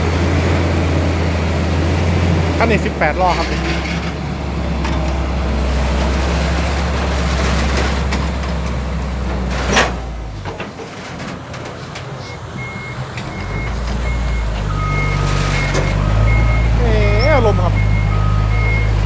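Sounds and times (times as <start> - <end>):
truck diesel engine running: 0.0 - 19.0
truck reversing alarm beeping: 12.1 - 19.0.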